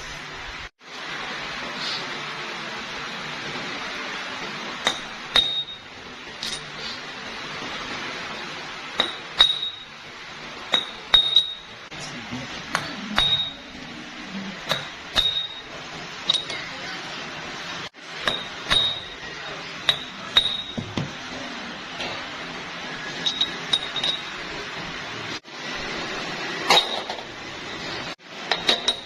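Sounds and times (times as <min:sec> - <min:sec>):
steady background noise: 0:00.0 - 0:29.0
metal parts clinking: 0:06.4 - 0:06.7.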